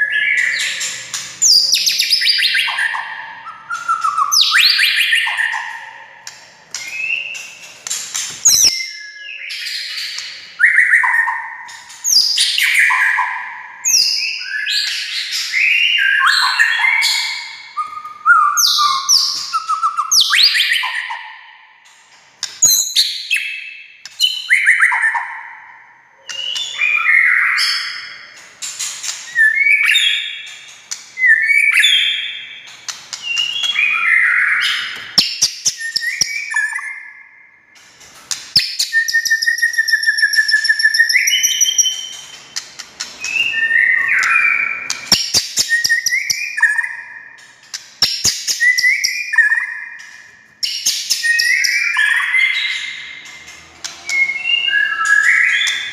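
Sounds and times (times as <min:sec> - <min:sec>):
bird singing whistles: 0:00.0 - 0:05.8, 0:06.7 - 0:07.7, 0:08.4 - 0:21.4, 0:26.2 - 0:28.4, 0:29.0 - 0:30.6, 0:31.2 - 0:37.6, 0:38.6 - 0:53.3, 0:53.9 - 0:55.9
bird trill with ringing notes: 0:48.1 - 0:55.9.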